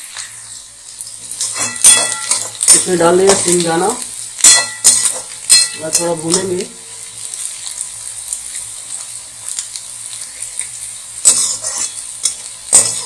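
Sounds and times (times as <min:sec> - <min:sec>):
food sizzling in hot oil: 0:00.0 - 0:13.0
metal spatula scraping pan: 0:01.3 - 0:03.5, 0:11.2 - 0:13.0.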